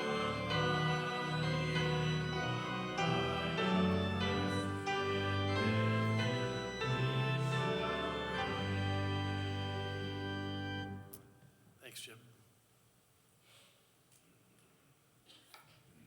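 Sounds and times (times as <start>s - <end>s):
hymn tune in slow chords: 0.0s - 11.2s.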